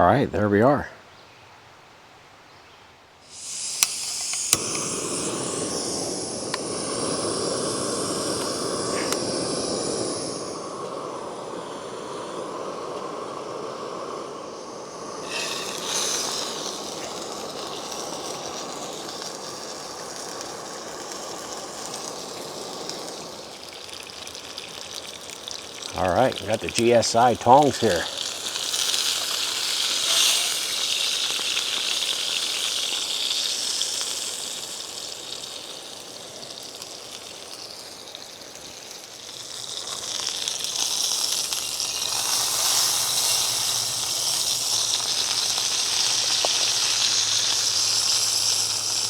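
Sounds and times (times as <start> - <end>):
food sizzling in a skillet: 3.2 - 49.0
sharp pops: 3.3 - 23.2, 26.2 - 30.9.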